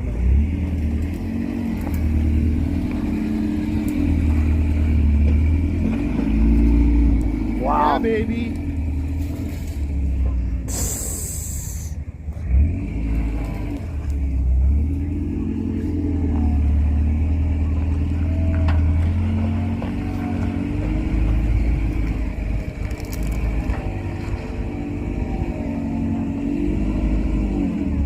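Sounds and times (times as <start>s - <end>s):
truck engine running under load: 0.0s - 28.0s
loud air hiss: 10.7s - 12.0s.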